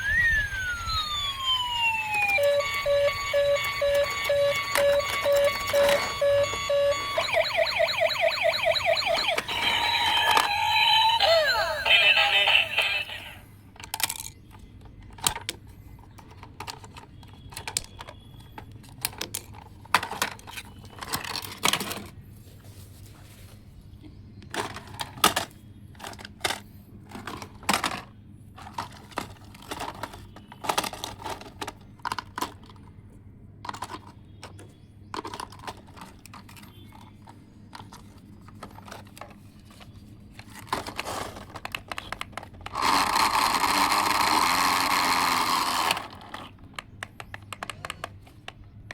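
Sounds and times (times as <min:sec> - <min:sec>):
small electric motor whirring: 0:00.0 - 0:03.8, 0:42.8 - 0:46.2
small hard parts clattering: 0:13.8 - 0:22.2, 0:24.5 - 0:32.9, 0:33.6 - 0:43.3.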